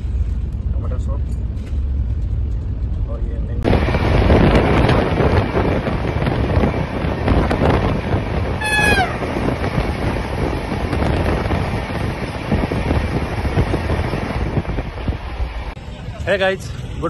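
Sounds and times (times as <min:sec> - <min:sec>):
wind rush of moving train: 0:00.0 - 0:17.0
high whistle falling in pitch: 0:08.6 - 0:09.2.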